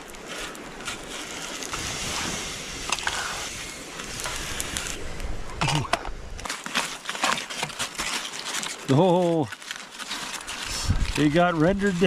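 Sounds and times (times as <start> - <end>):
campfire crackling: 0.0 - 12.0
wind rumble on microphone: 10.7 - 12.0.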